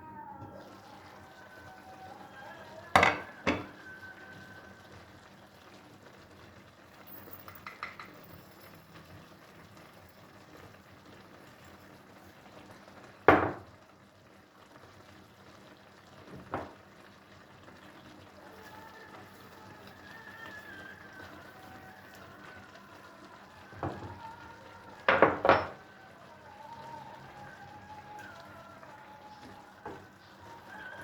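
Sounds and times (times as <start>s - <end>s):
dishes clinking: 2.9s - 3.9s, 7.4s - 8.8s, 25.1s - 25.8s.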